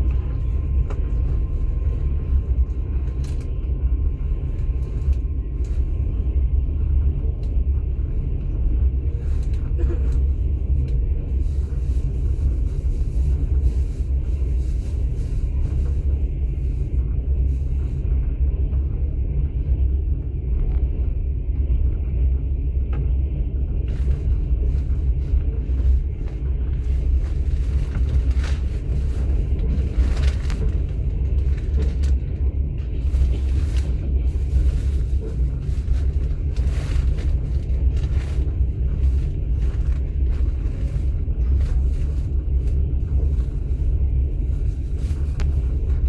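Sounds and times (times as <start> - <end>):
faint clicks and rattles: 0.0 - 46.0
train carriage rumbling on rails: 0.0 - 46.0.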